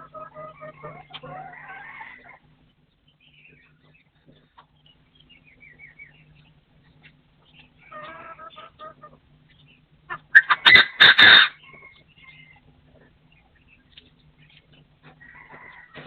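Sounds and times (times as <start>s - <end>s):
partridge calling: 3.1s - 12.6s.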